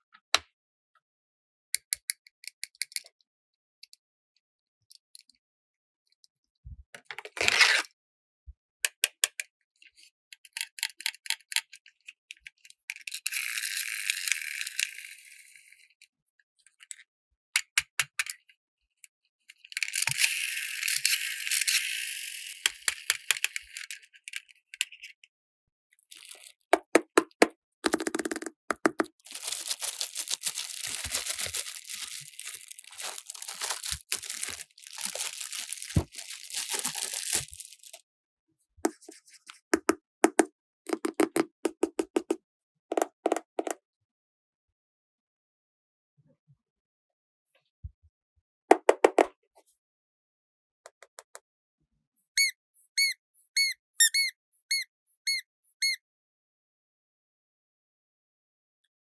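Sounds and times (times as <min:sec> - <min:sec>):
plastic pieces clicking and rattling: 0:27.9 - 0:38.0
plastic packaging crinkling and tearing: 0:29.2 - 0:38.0.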